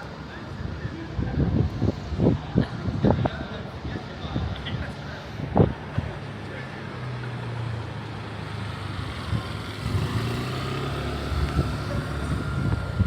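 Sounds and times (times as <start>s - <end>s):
city street noise: 0.0s - 13.0s
vehicle engine running: 7.5s - 13.0s.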